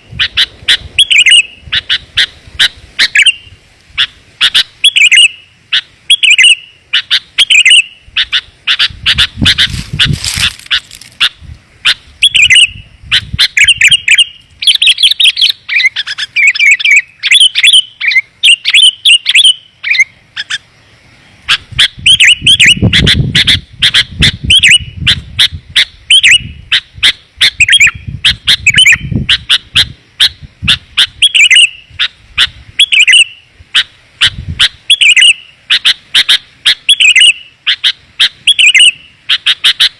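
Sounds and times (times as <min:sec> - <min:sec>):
bulbuls chirping: 0:00.0 - 0:39.9.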